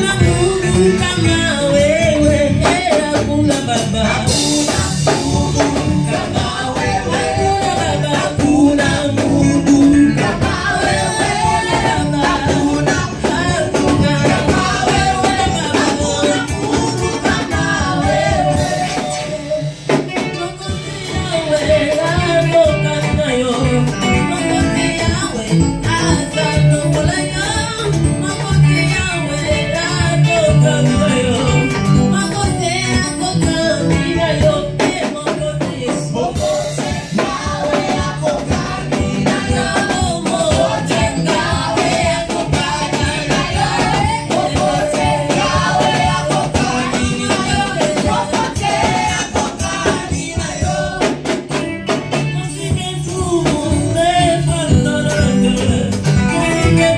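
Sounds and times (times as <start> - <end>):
live band accompaniment: 0.0 - 56.9
percussion beat: 0.0 - 56.9
church choir singing: 4.3 - 19.7, 36.1 - 51.5.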